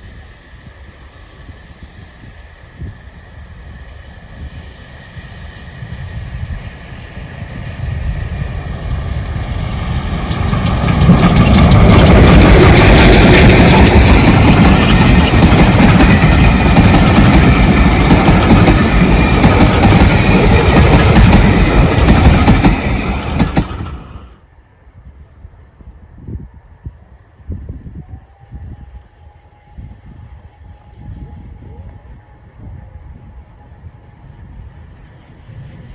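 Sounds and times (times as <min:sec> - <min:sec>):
train passing close by: 0:00.0 - 0:35.9
wheels clicking over rail joints: 0:07.4 - 0:24.0.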